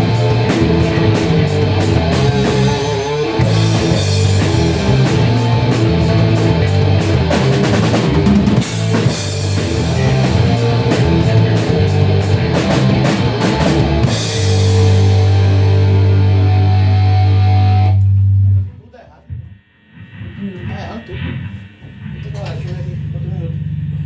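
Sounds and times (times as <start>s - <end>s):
heavy rock band playing: 0.0s - 18.6s.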